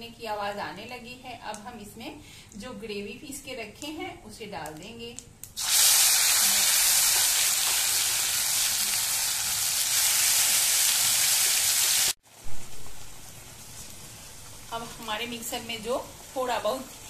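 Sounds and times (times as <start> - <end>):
paste sizzling in hot oil: 5.6 - 17.0.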